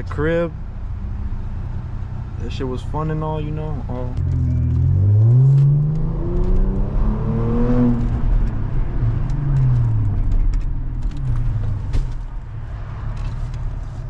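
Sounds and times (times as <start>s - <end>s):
car engine accelerating: 3.8s - 13.8s.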